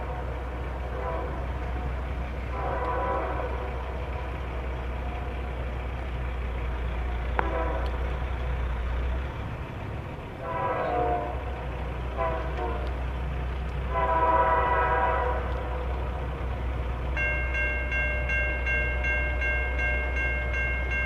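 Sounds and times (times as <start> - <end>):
locomotive air horn blasts: 0.0 - 4.2, 7.3 - 8.4, 10.4 - 13.1, 13.8 - 16.1
diesel train rumble: 0.0 - 21.0.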